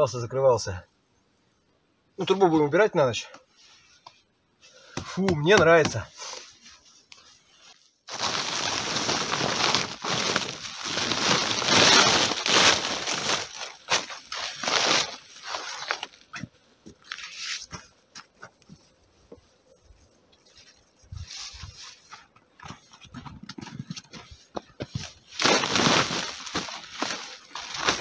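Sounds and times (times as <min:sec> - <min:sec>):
loud crunching crinkling rustle: 0:06.1 - 0:22.3, 0:24.2 - 0:28.0.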